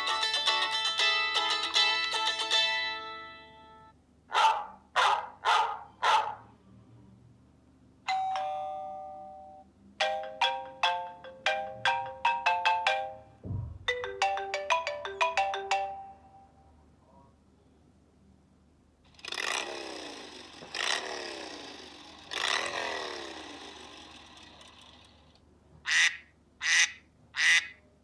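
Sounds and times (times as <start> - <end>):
low thump: 13.4 - 14.1.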